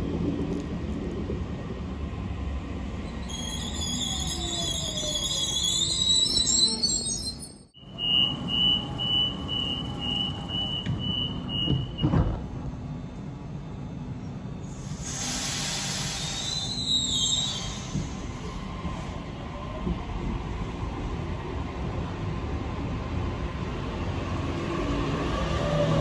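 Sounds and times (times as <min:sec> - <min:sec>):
high electronic warning beeps: 0:07.8 - 0:12.1
air hissing: 0:14.7 - 0:18.5.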